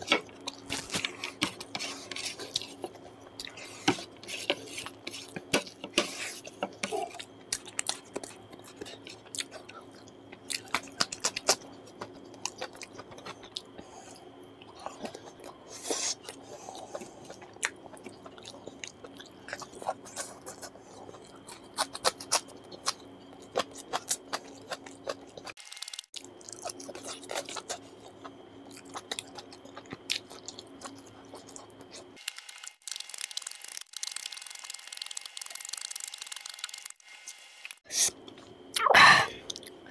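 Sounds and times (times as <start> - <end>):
steady low hum: 0.0 - 25.6
crunchy chewing: 0.0 - 38.8.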